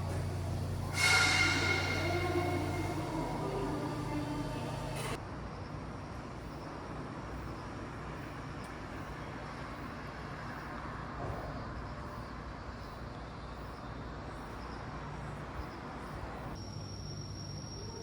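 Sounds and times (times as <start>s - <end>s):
traffic rumble with road hiss: 0.0s - 16.6s
insect trill: 15.6s - 18.0s.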